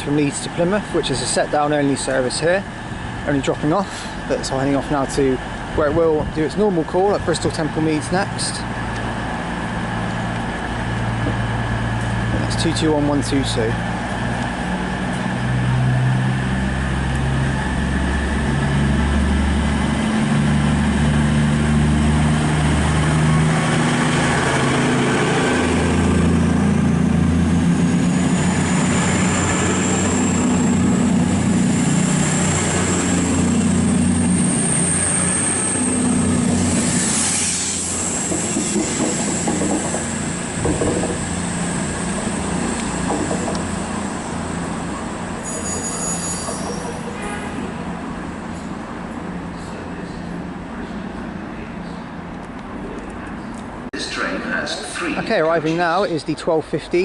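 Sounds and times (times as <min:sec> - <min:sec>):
diesel train engines under load: 0:00.0 - 0:57.0
thin high whistle: 0:45.4 - 0:47.0.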